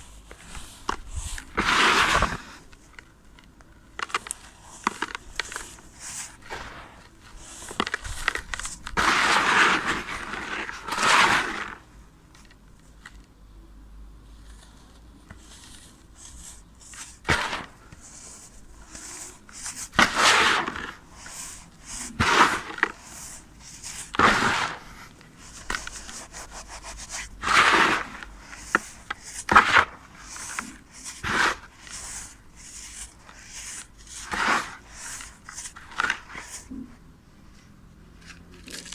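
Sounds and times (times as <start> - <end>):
sand crunching: 0.4 - 2.6, 4.3 - 11.8, 15.8 - 36.7
grainy sand crackling: 5.8 - 11.8.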